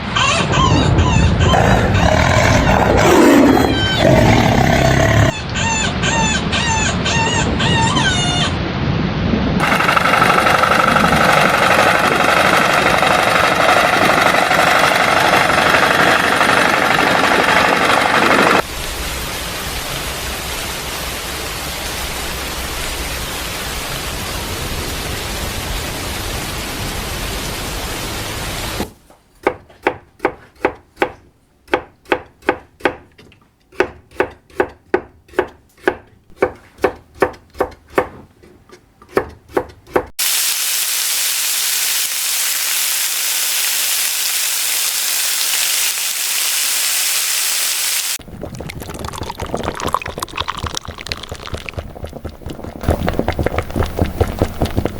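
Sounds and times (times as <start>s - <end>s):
knife chopping on cutting board: 29.4s - 33.1s, 33.7s - 40.1s
dense noise hiss: 40.2s - 48.2s.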